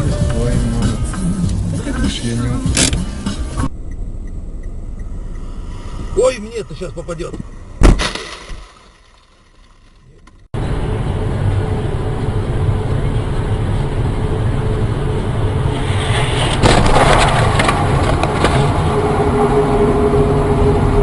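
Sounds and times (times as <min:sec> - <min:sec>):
car driving rumble: 0:00.0 - 0:21.0
collision crunch: 0:07.1 - 0:10.5, 0:15.8 - 0:18.9.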